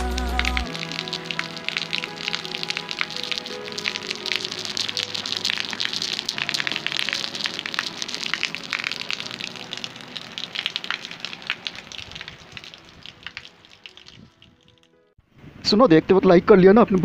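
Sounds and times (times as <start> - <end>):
rain pattering: 0.0 - 14.9.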